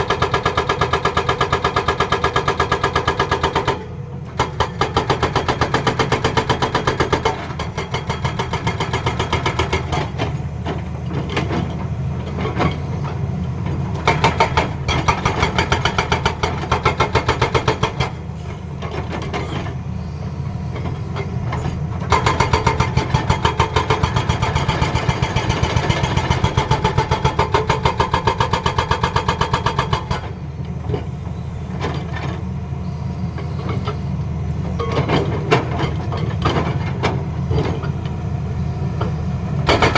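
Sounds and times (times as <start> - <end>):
diesel engine: 0.0 - 39.9
hydraulic breaker hammering: 22.1 - 30.3, 39.6 - 39.9.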